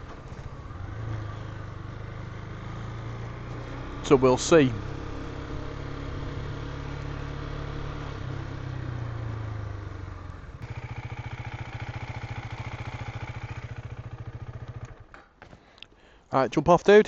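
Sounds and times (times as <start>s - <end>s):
motorcycle engine idling: 0.0s - 15.4s.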